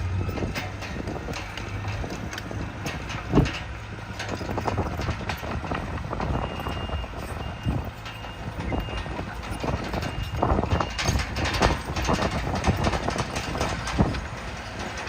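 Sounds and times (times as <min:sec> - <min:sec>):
heavy diesel machinery running: 0:00.0 - 0:15.0
knocks and clatters: 0:00.0 - 0:15.0
reversing alarm beeping: 0:06.2 - 0:13.1.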